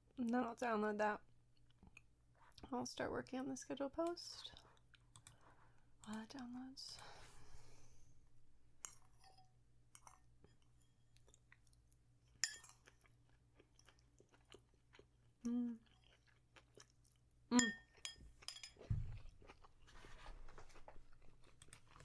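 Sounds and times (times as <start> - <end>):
chewing food: 1.6 - 2.7, 4.3 - 6.5, 10.0 - 22.0
person humming: 15.5 - 15.8.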